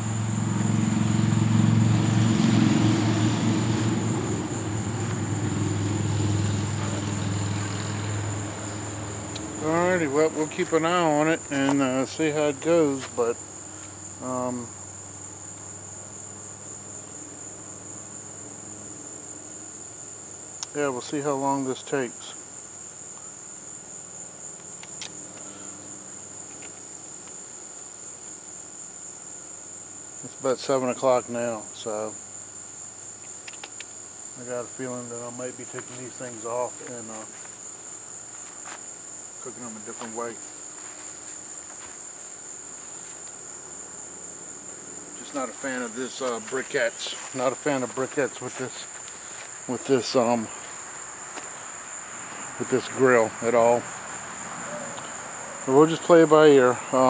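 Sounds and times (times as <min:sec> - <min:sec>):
passing motor engine drone: 0:00.0 - 0:10.2
crickets chirring: 0:00.0 - 0:57.0.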